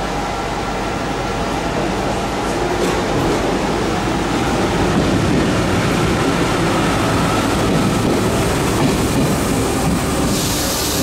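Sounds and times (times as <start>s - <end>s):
electric train rumbling on rails: 0.0s - 11.0s
high hiss: 9.3s - 11.0s.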